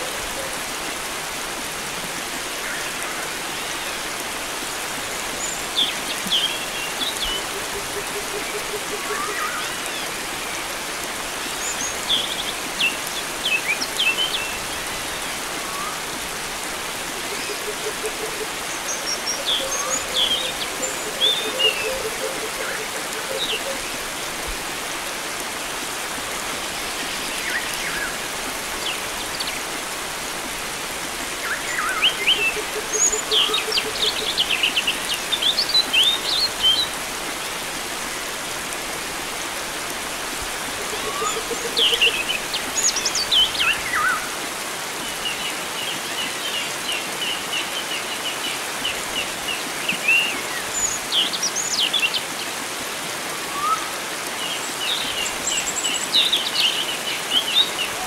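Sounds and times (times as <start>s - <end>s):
flowing water: 0.0s - 58.0s.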